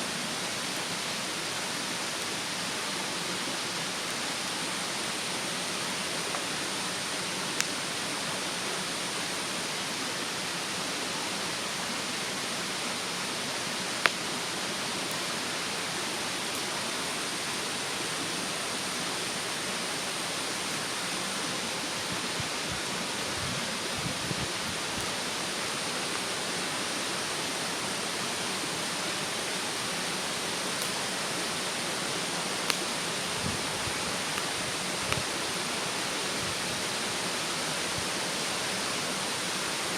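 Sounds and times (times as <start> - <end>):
mountain stream rushing: 0.0 - 39.9
wood fire crackling: 3.8 - 8.0, 13.8 - 17.8, 30.2 - 35.9.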